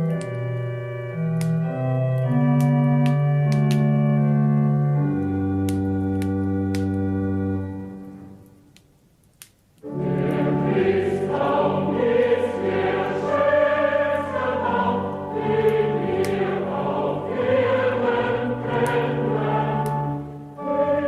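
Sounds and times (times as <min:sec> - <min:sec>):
choir singing in harmony: 0:09.9 - 0:21.0.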